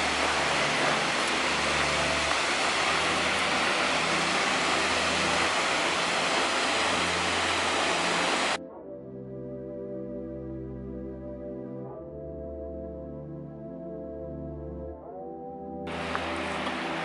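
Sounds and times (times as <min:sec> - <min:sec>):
waterfall roaring: 0:00.0 - 0:08.6, 0:15.9 - 0:17.0.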